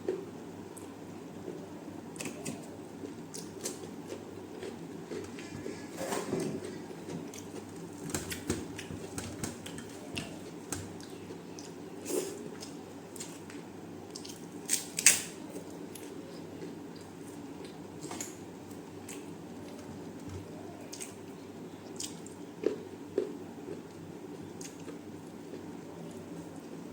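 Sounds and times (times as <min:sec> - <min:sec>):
person chewing: 0:14.1 - 0:14.9, 0:21.8 - 0:26.8.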